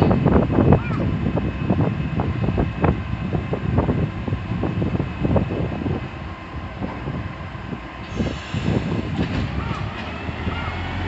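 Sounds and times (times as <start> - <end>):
electric train rumbling: 0.0 - 11.0
wind buffeting microphone: 0.0 - 11.0.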